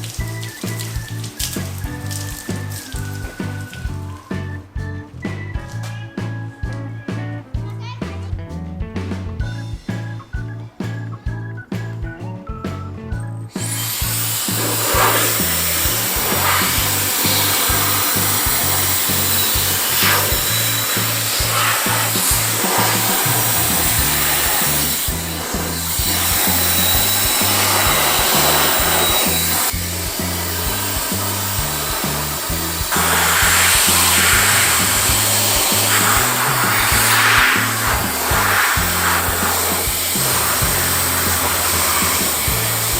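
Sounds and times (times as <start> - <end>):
electric fan blowing air: 0.0 - 4.2, 13.5 - 42.9
background music with steady beat: 0.0 - 42.9.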